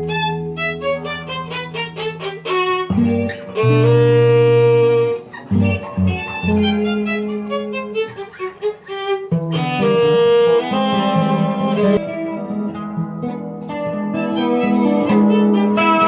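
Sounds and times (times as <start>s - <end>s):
acoustic guitar: 0.0s - 16.0s
violin: 0.0s - 16.0s.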